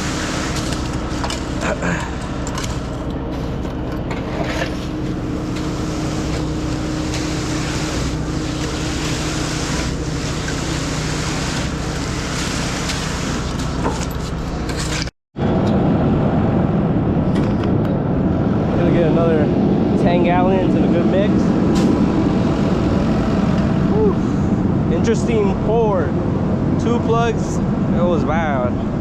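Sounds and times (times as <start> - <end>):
pump engine running: 0.0 - 15.1, 20.6 - 25.0
low rumble: 15.4 - 29.0.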